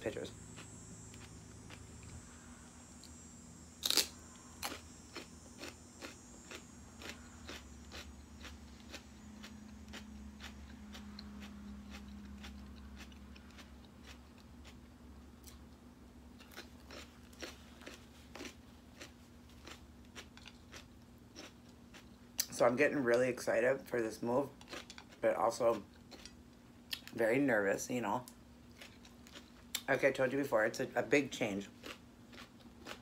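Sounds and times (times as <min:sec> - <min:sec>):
low hum: 0:00.0 - 0:22.2
crunchy chewing of celery: 0:00.1 - 0:23.4, 0:24.2 - 0:27.2, 0:28.2 - 0:30.3, 0:31.1 - 0:33.0.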